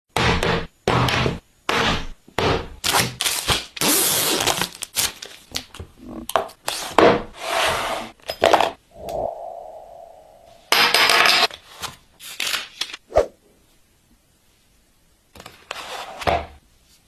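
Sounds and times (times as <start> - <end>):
packaging crinkling and tearing: 3.2 - 5.7.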